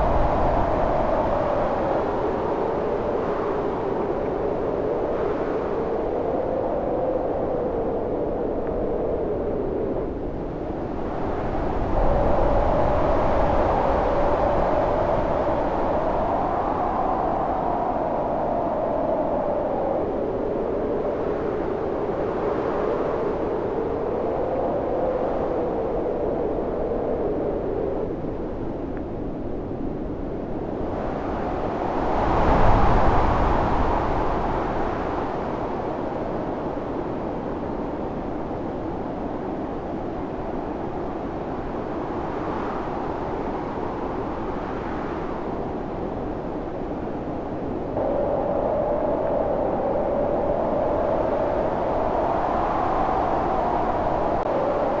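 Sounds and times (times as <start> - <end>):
storm wind howling: 0.0 - 55.0.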